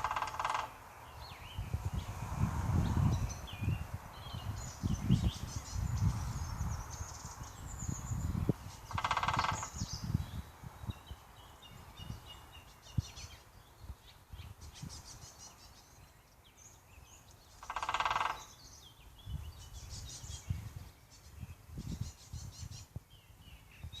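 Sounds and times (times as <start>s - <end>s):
woodpecker knocking on wood: 0.0s - 0.8s, 8.9s - 9.8s, 17.6s - 18.5s
woodpecker rapid rattle: 0.0s - 0.8s, 8.8s - 9.8s, 17.6s - 18.5s
small birds chirping: 0.0s - 24.0s.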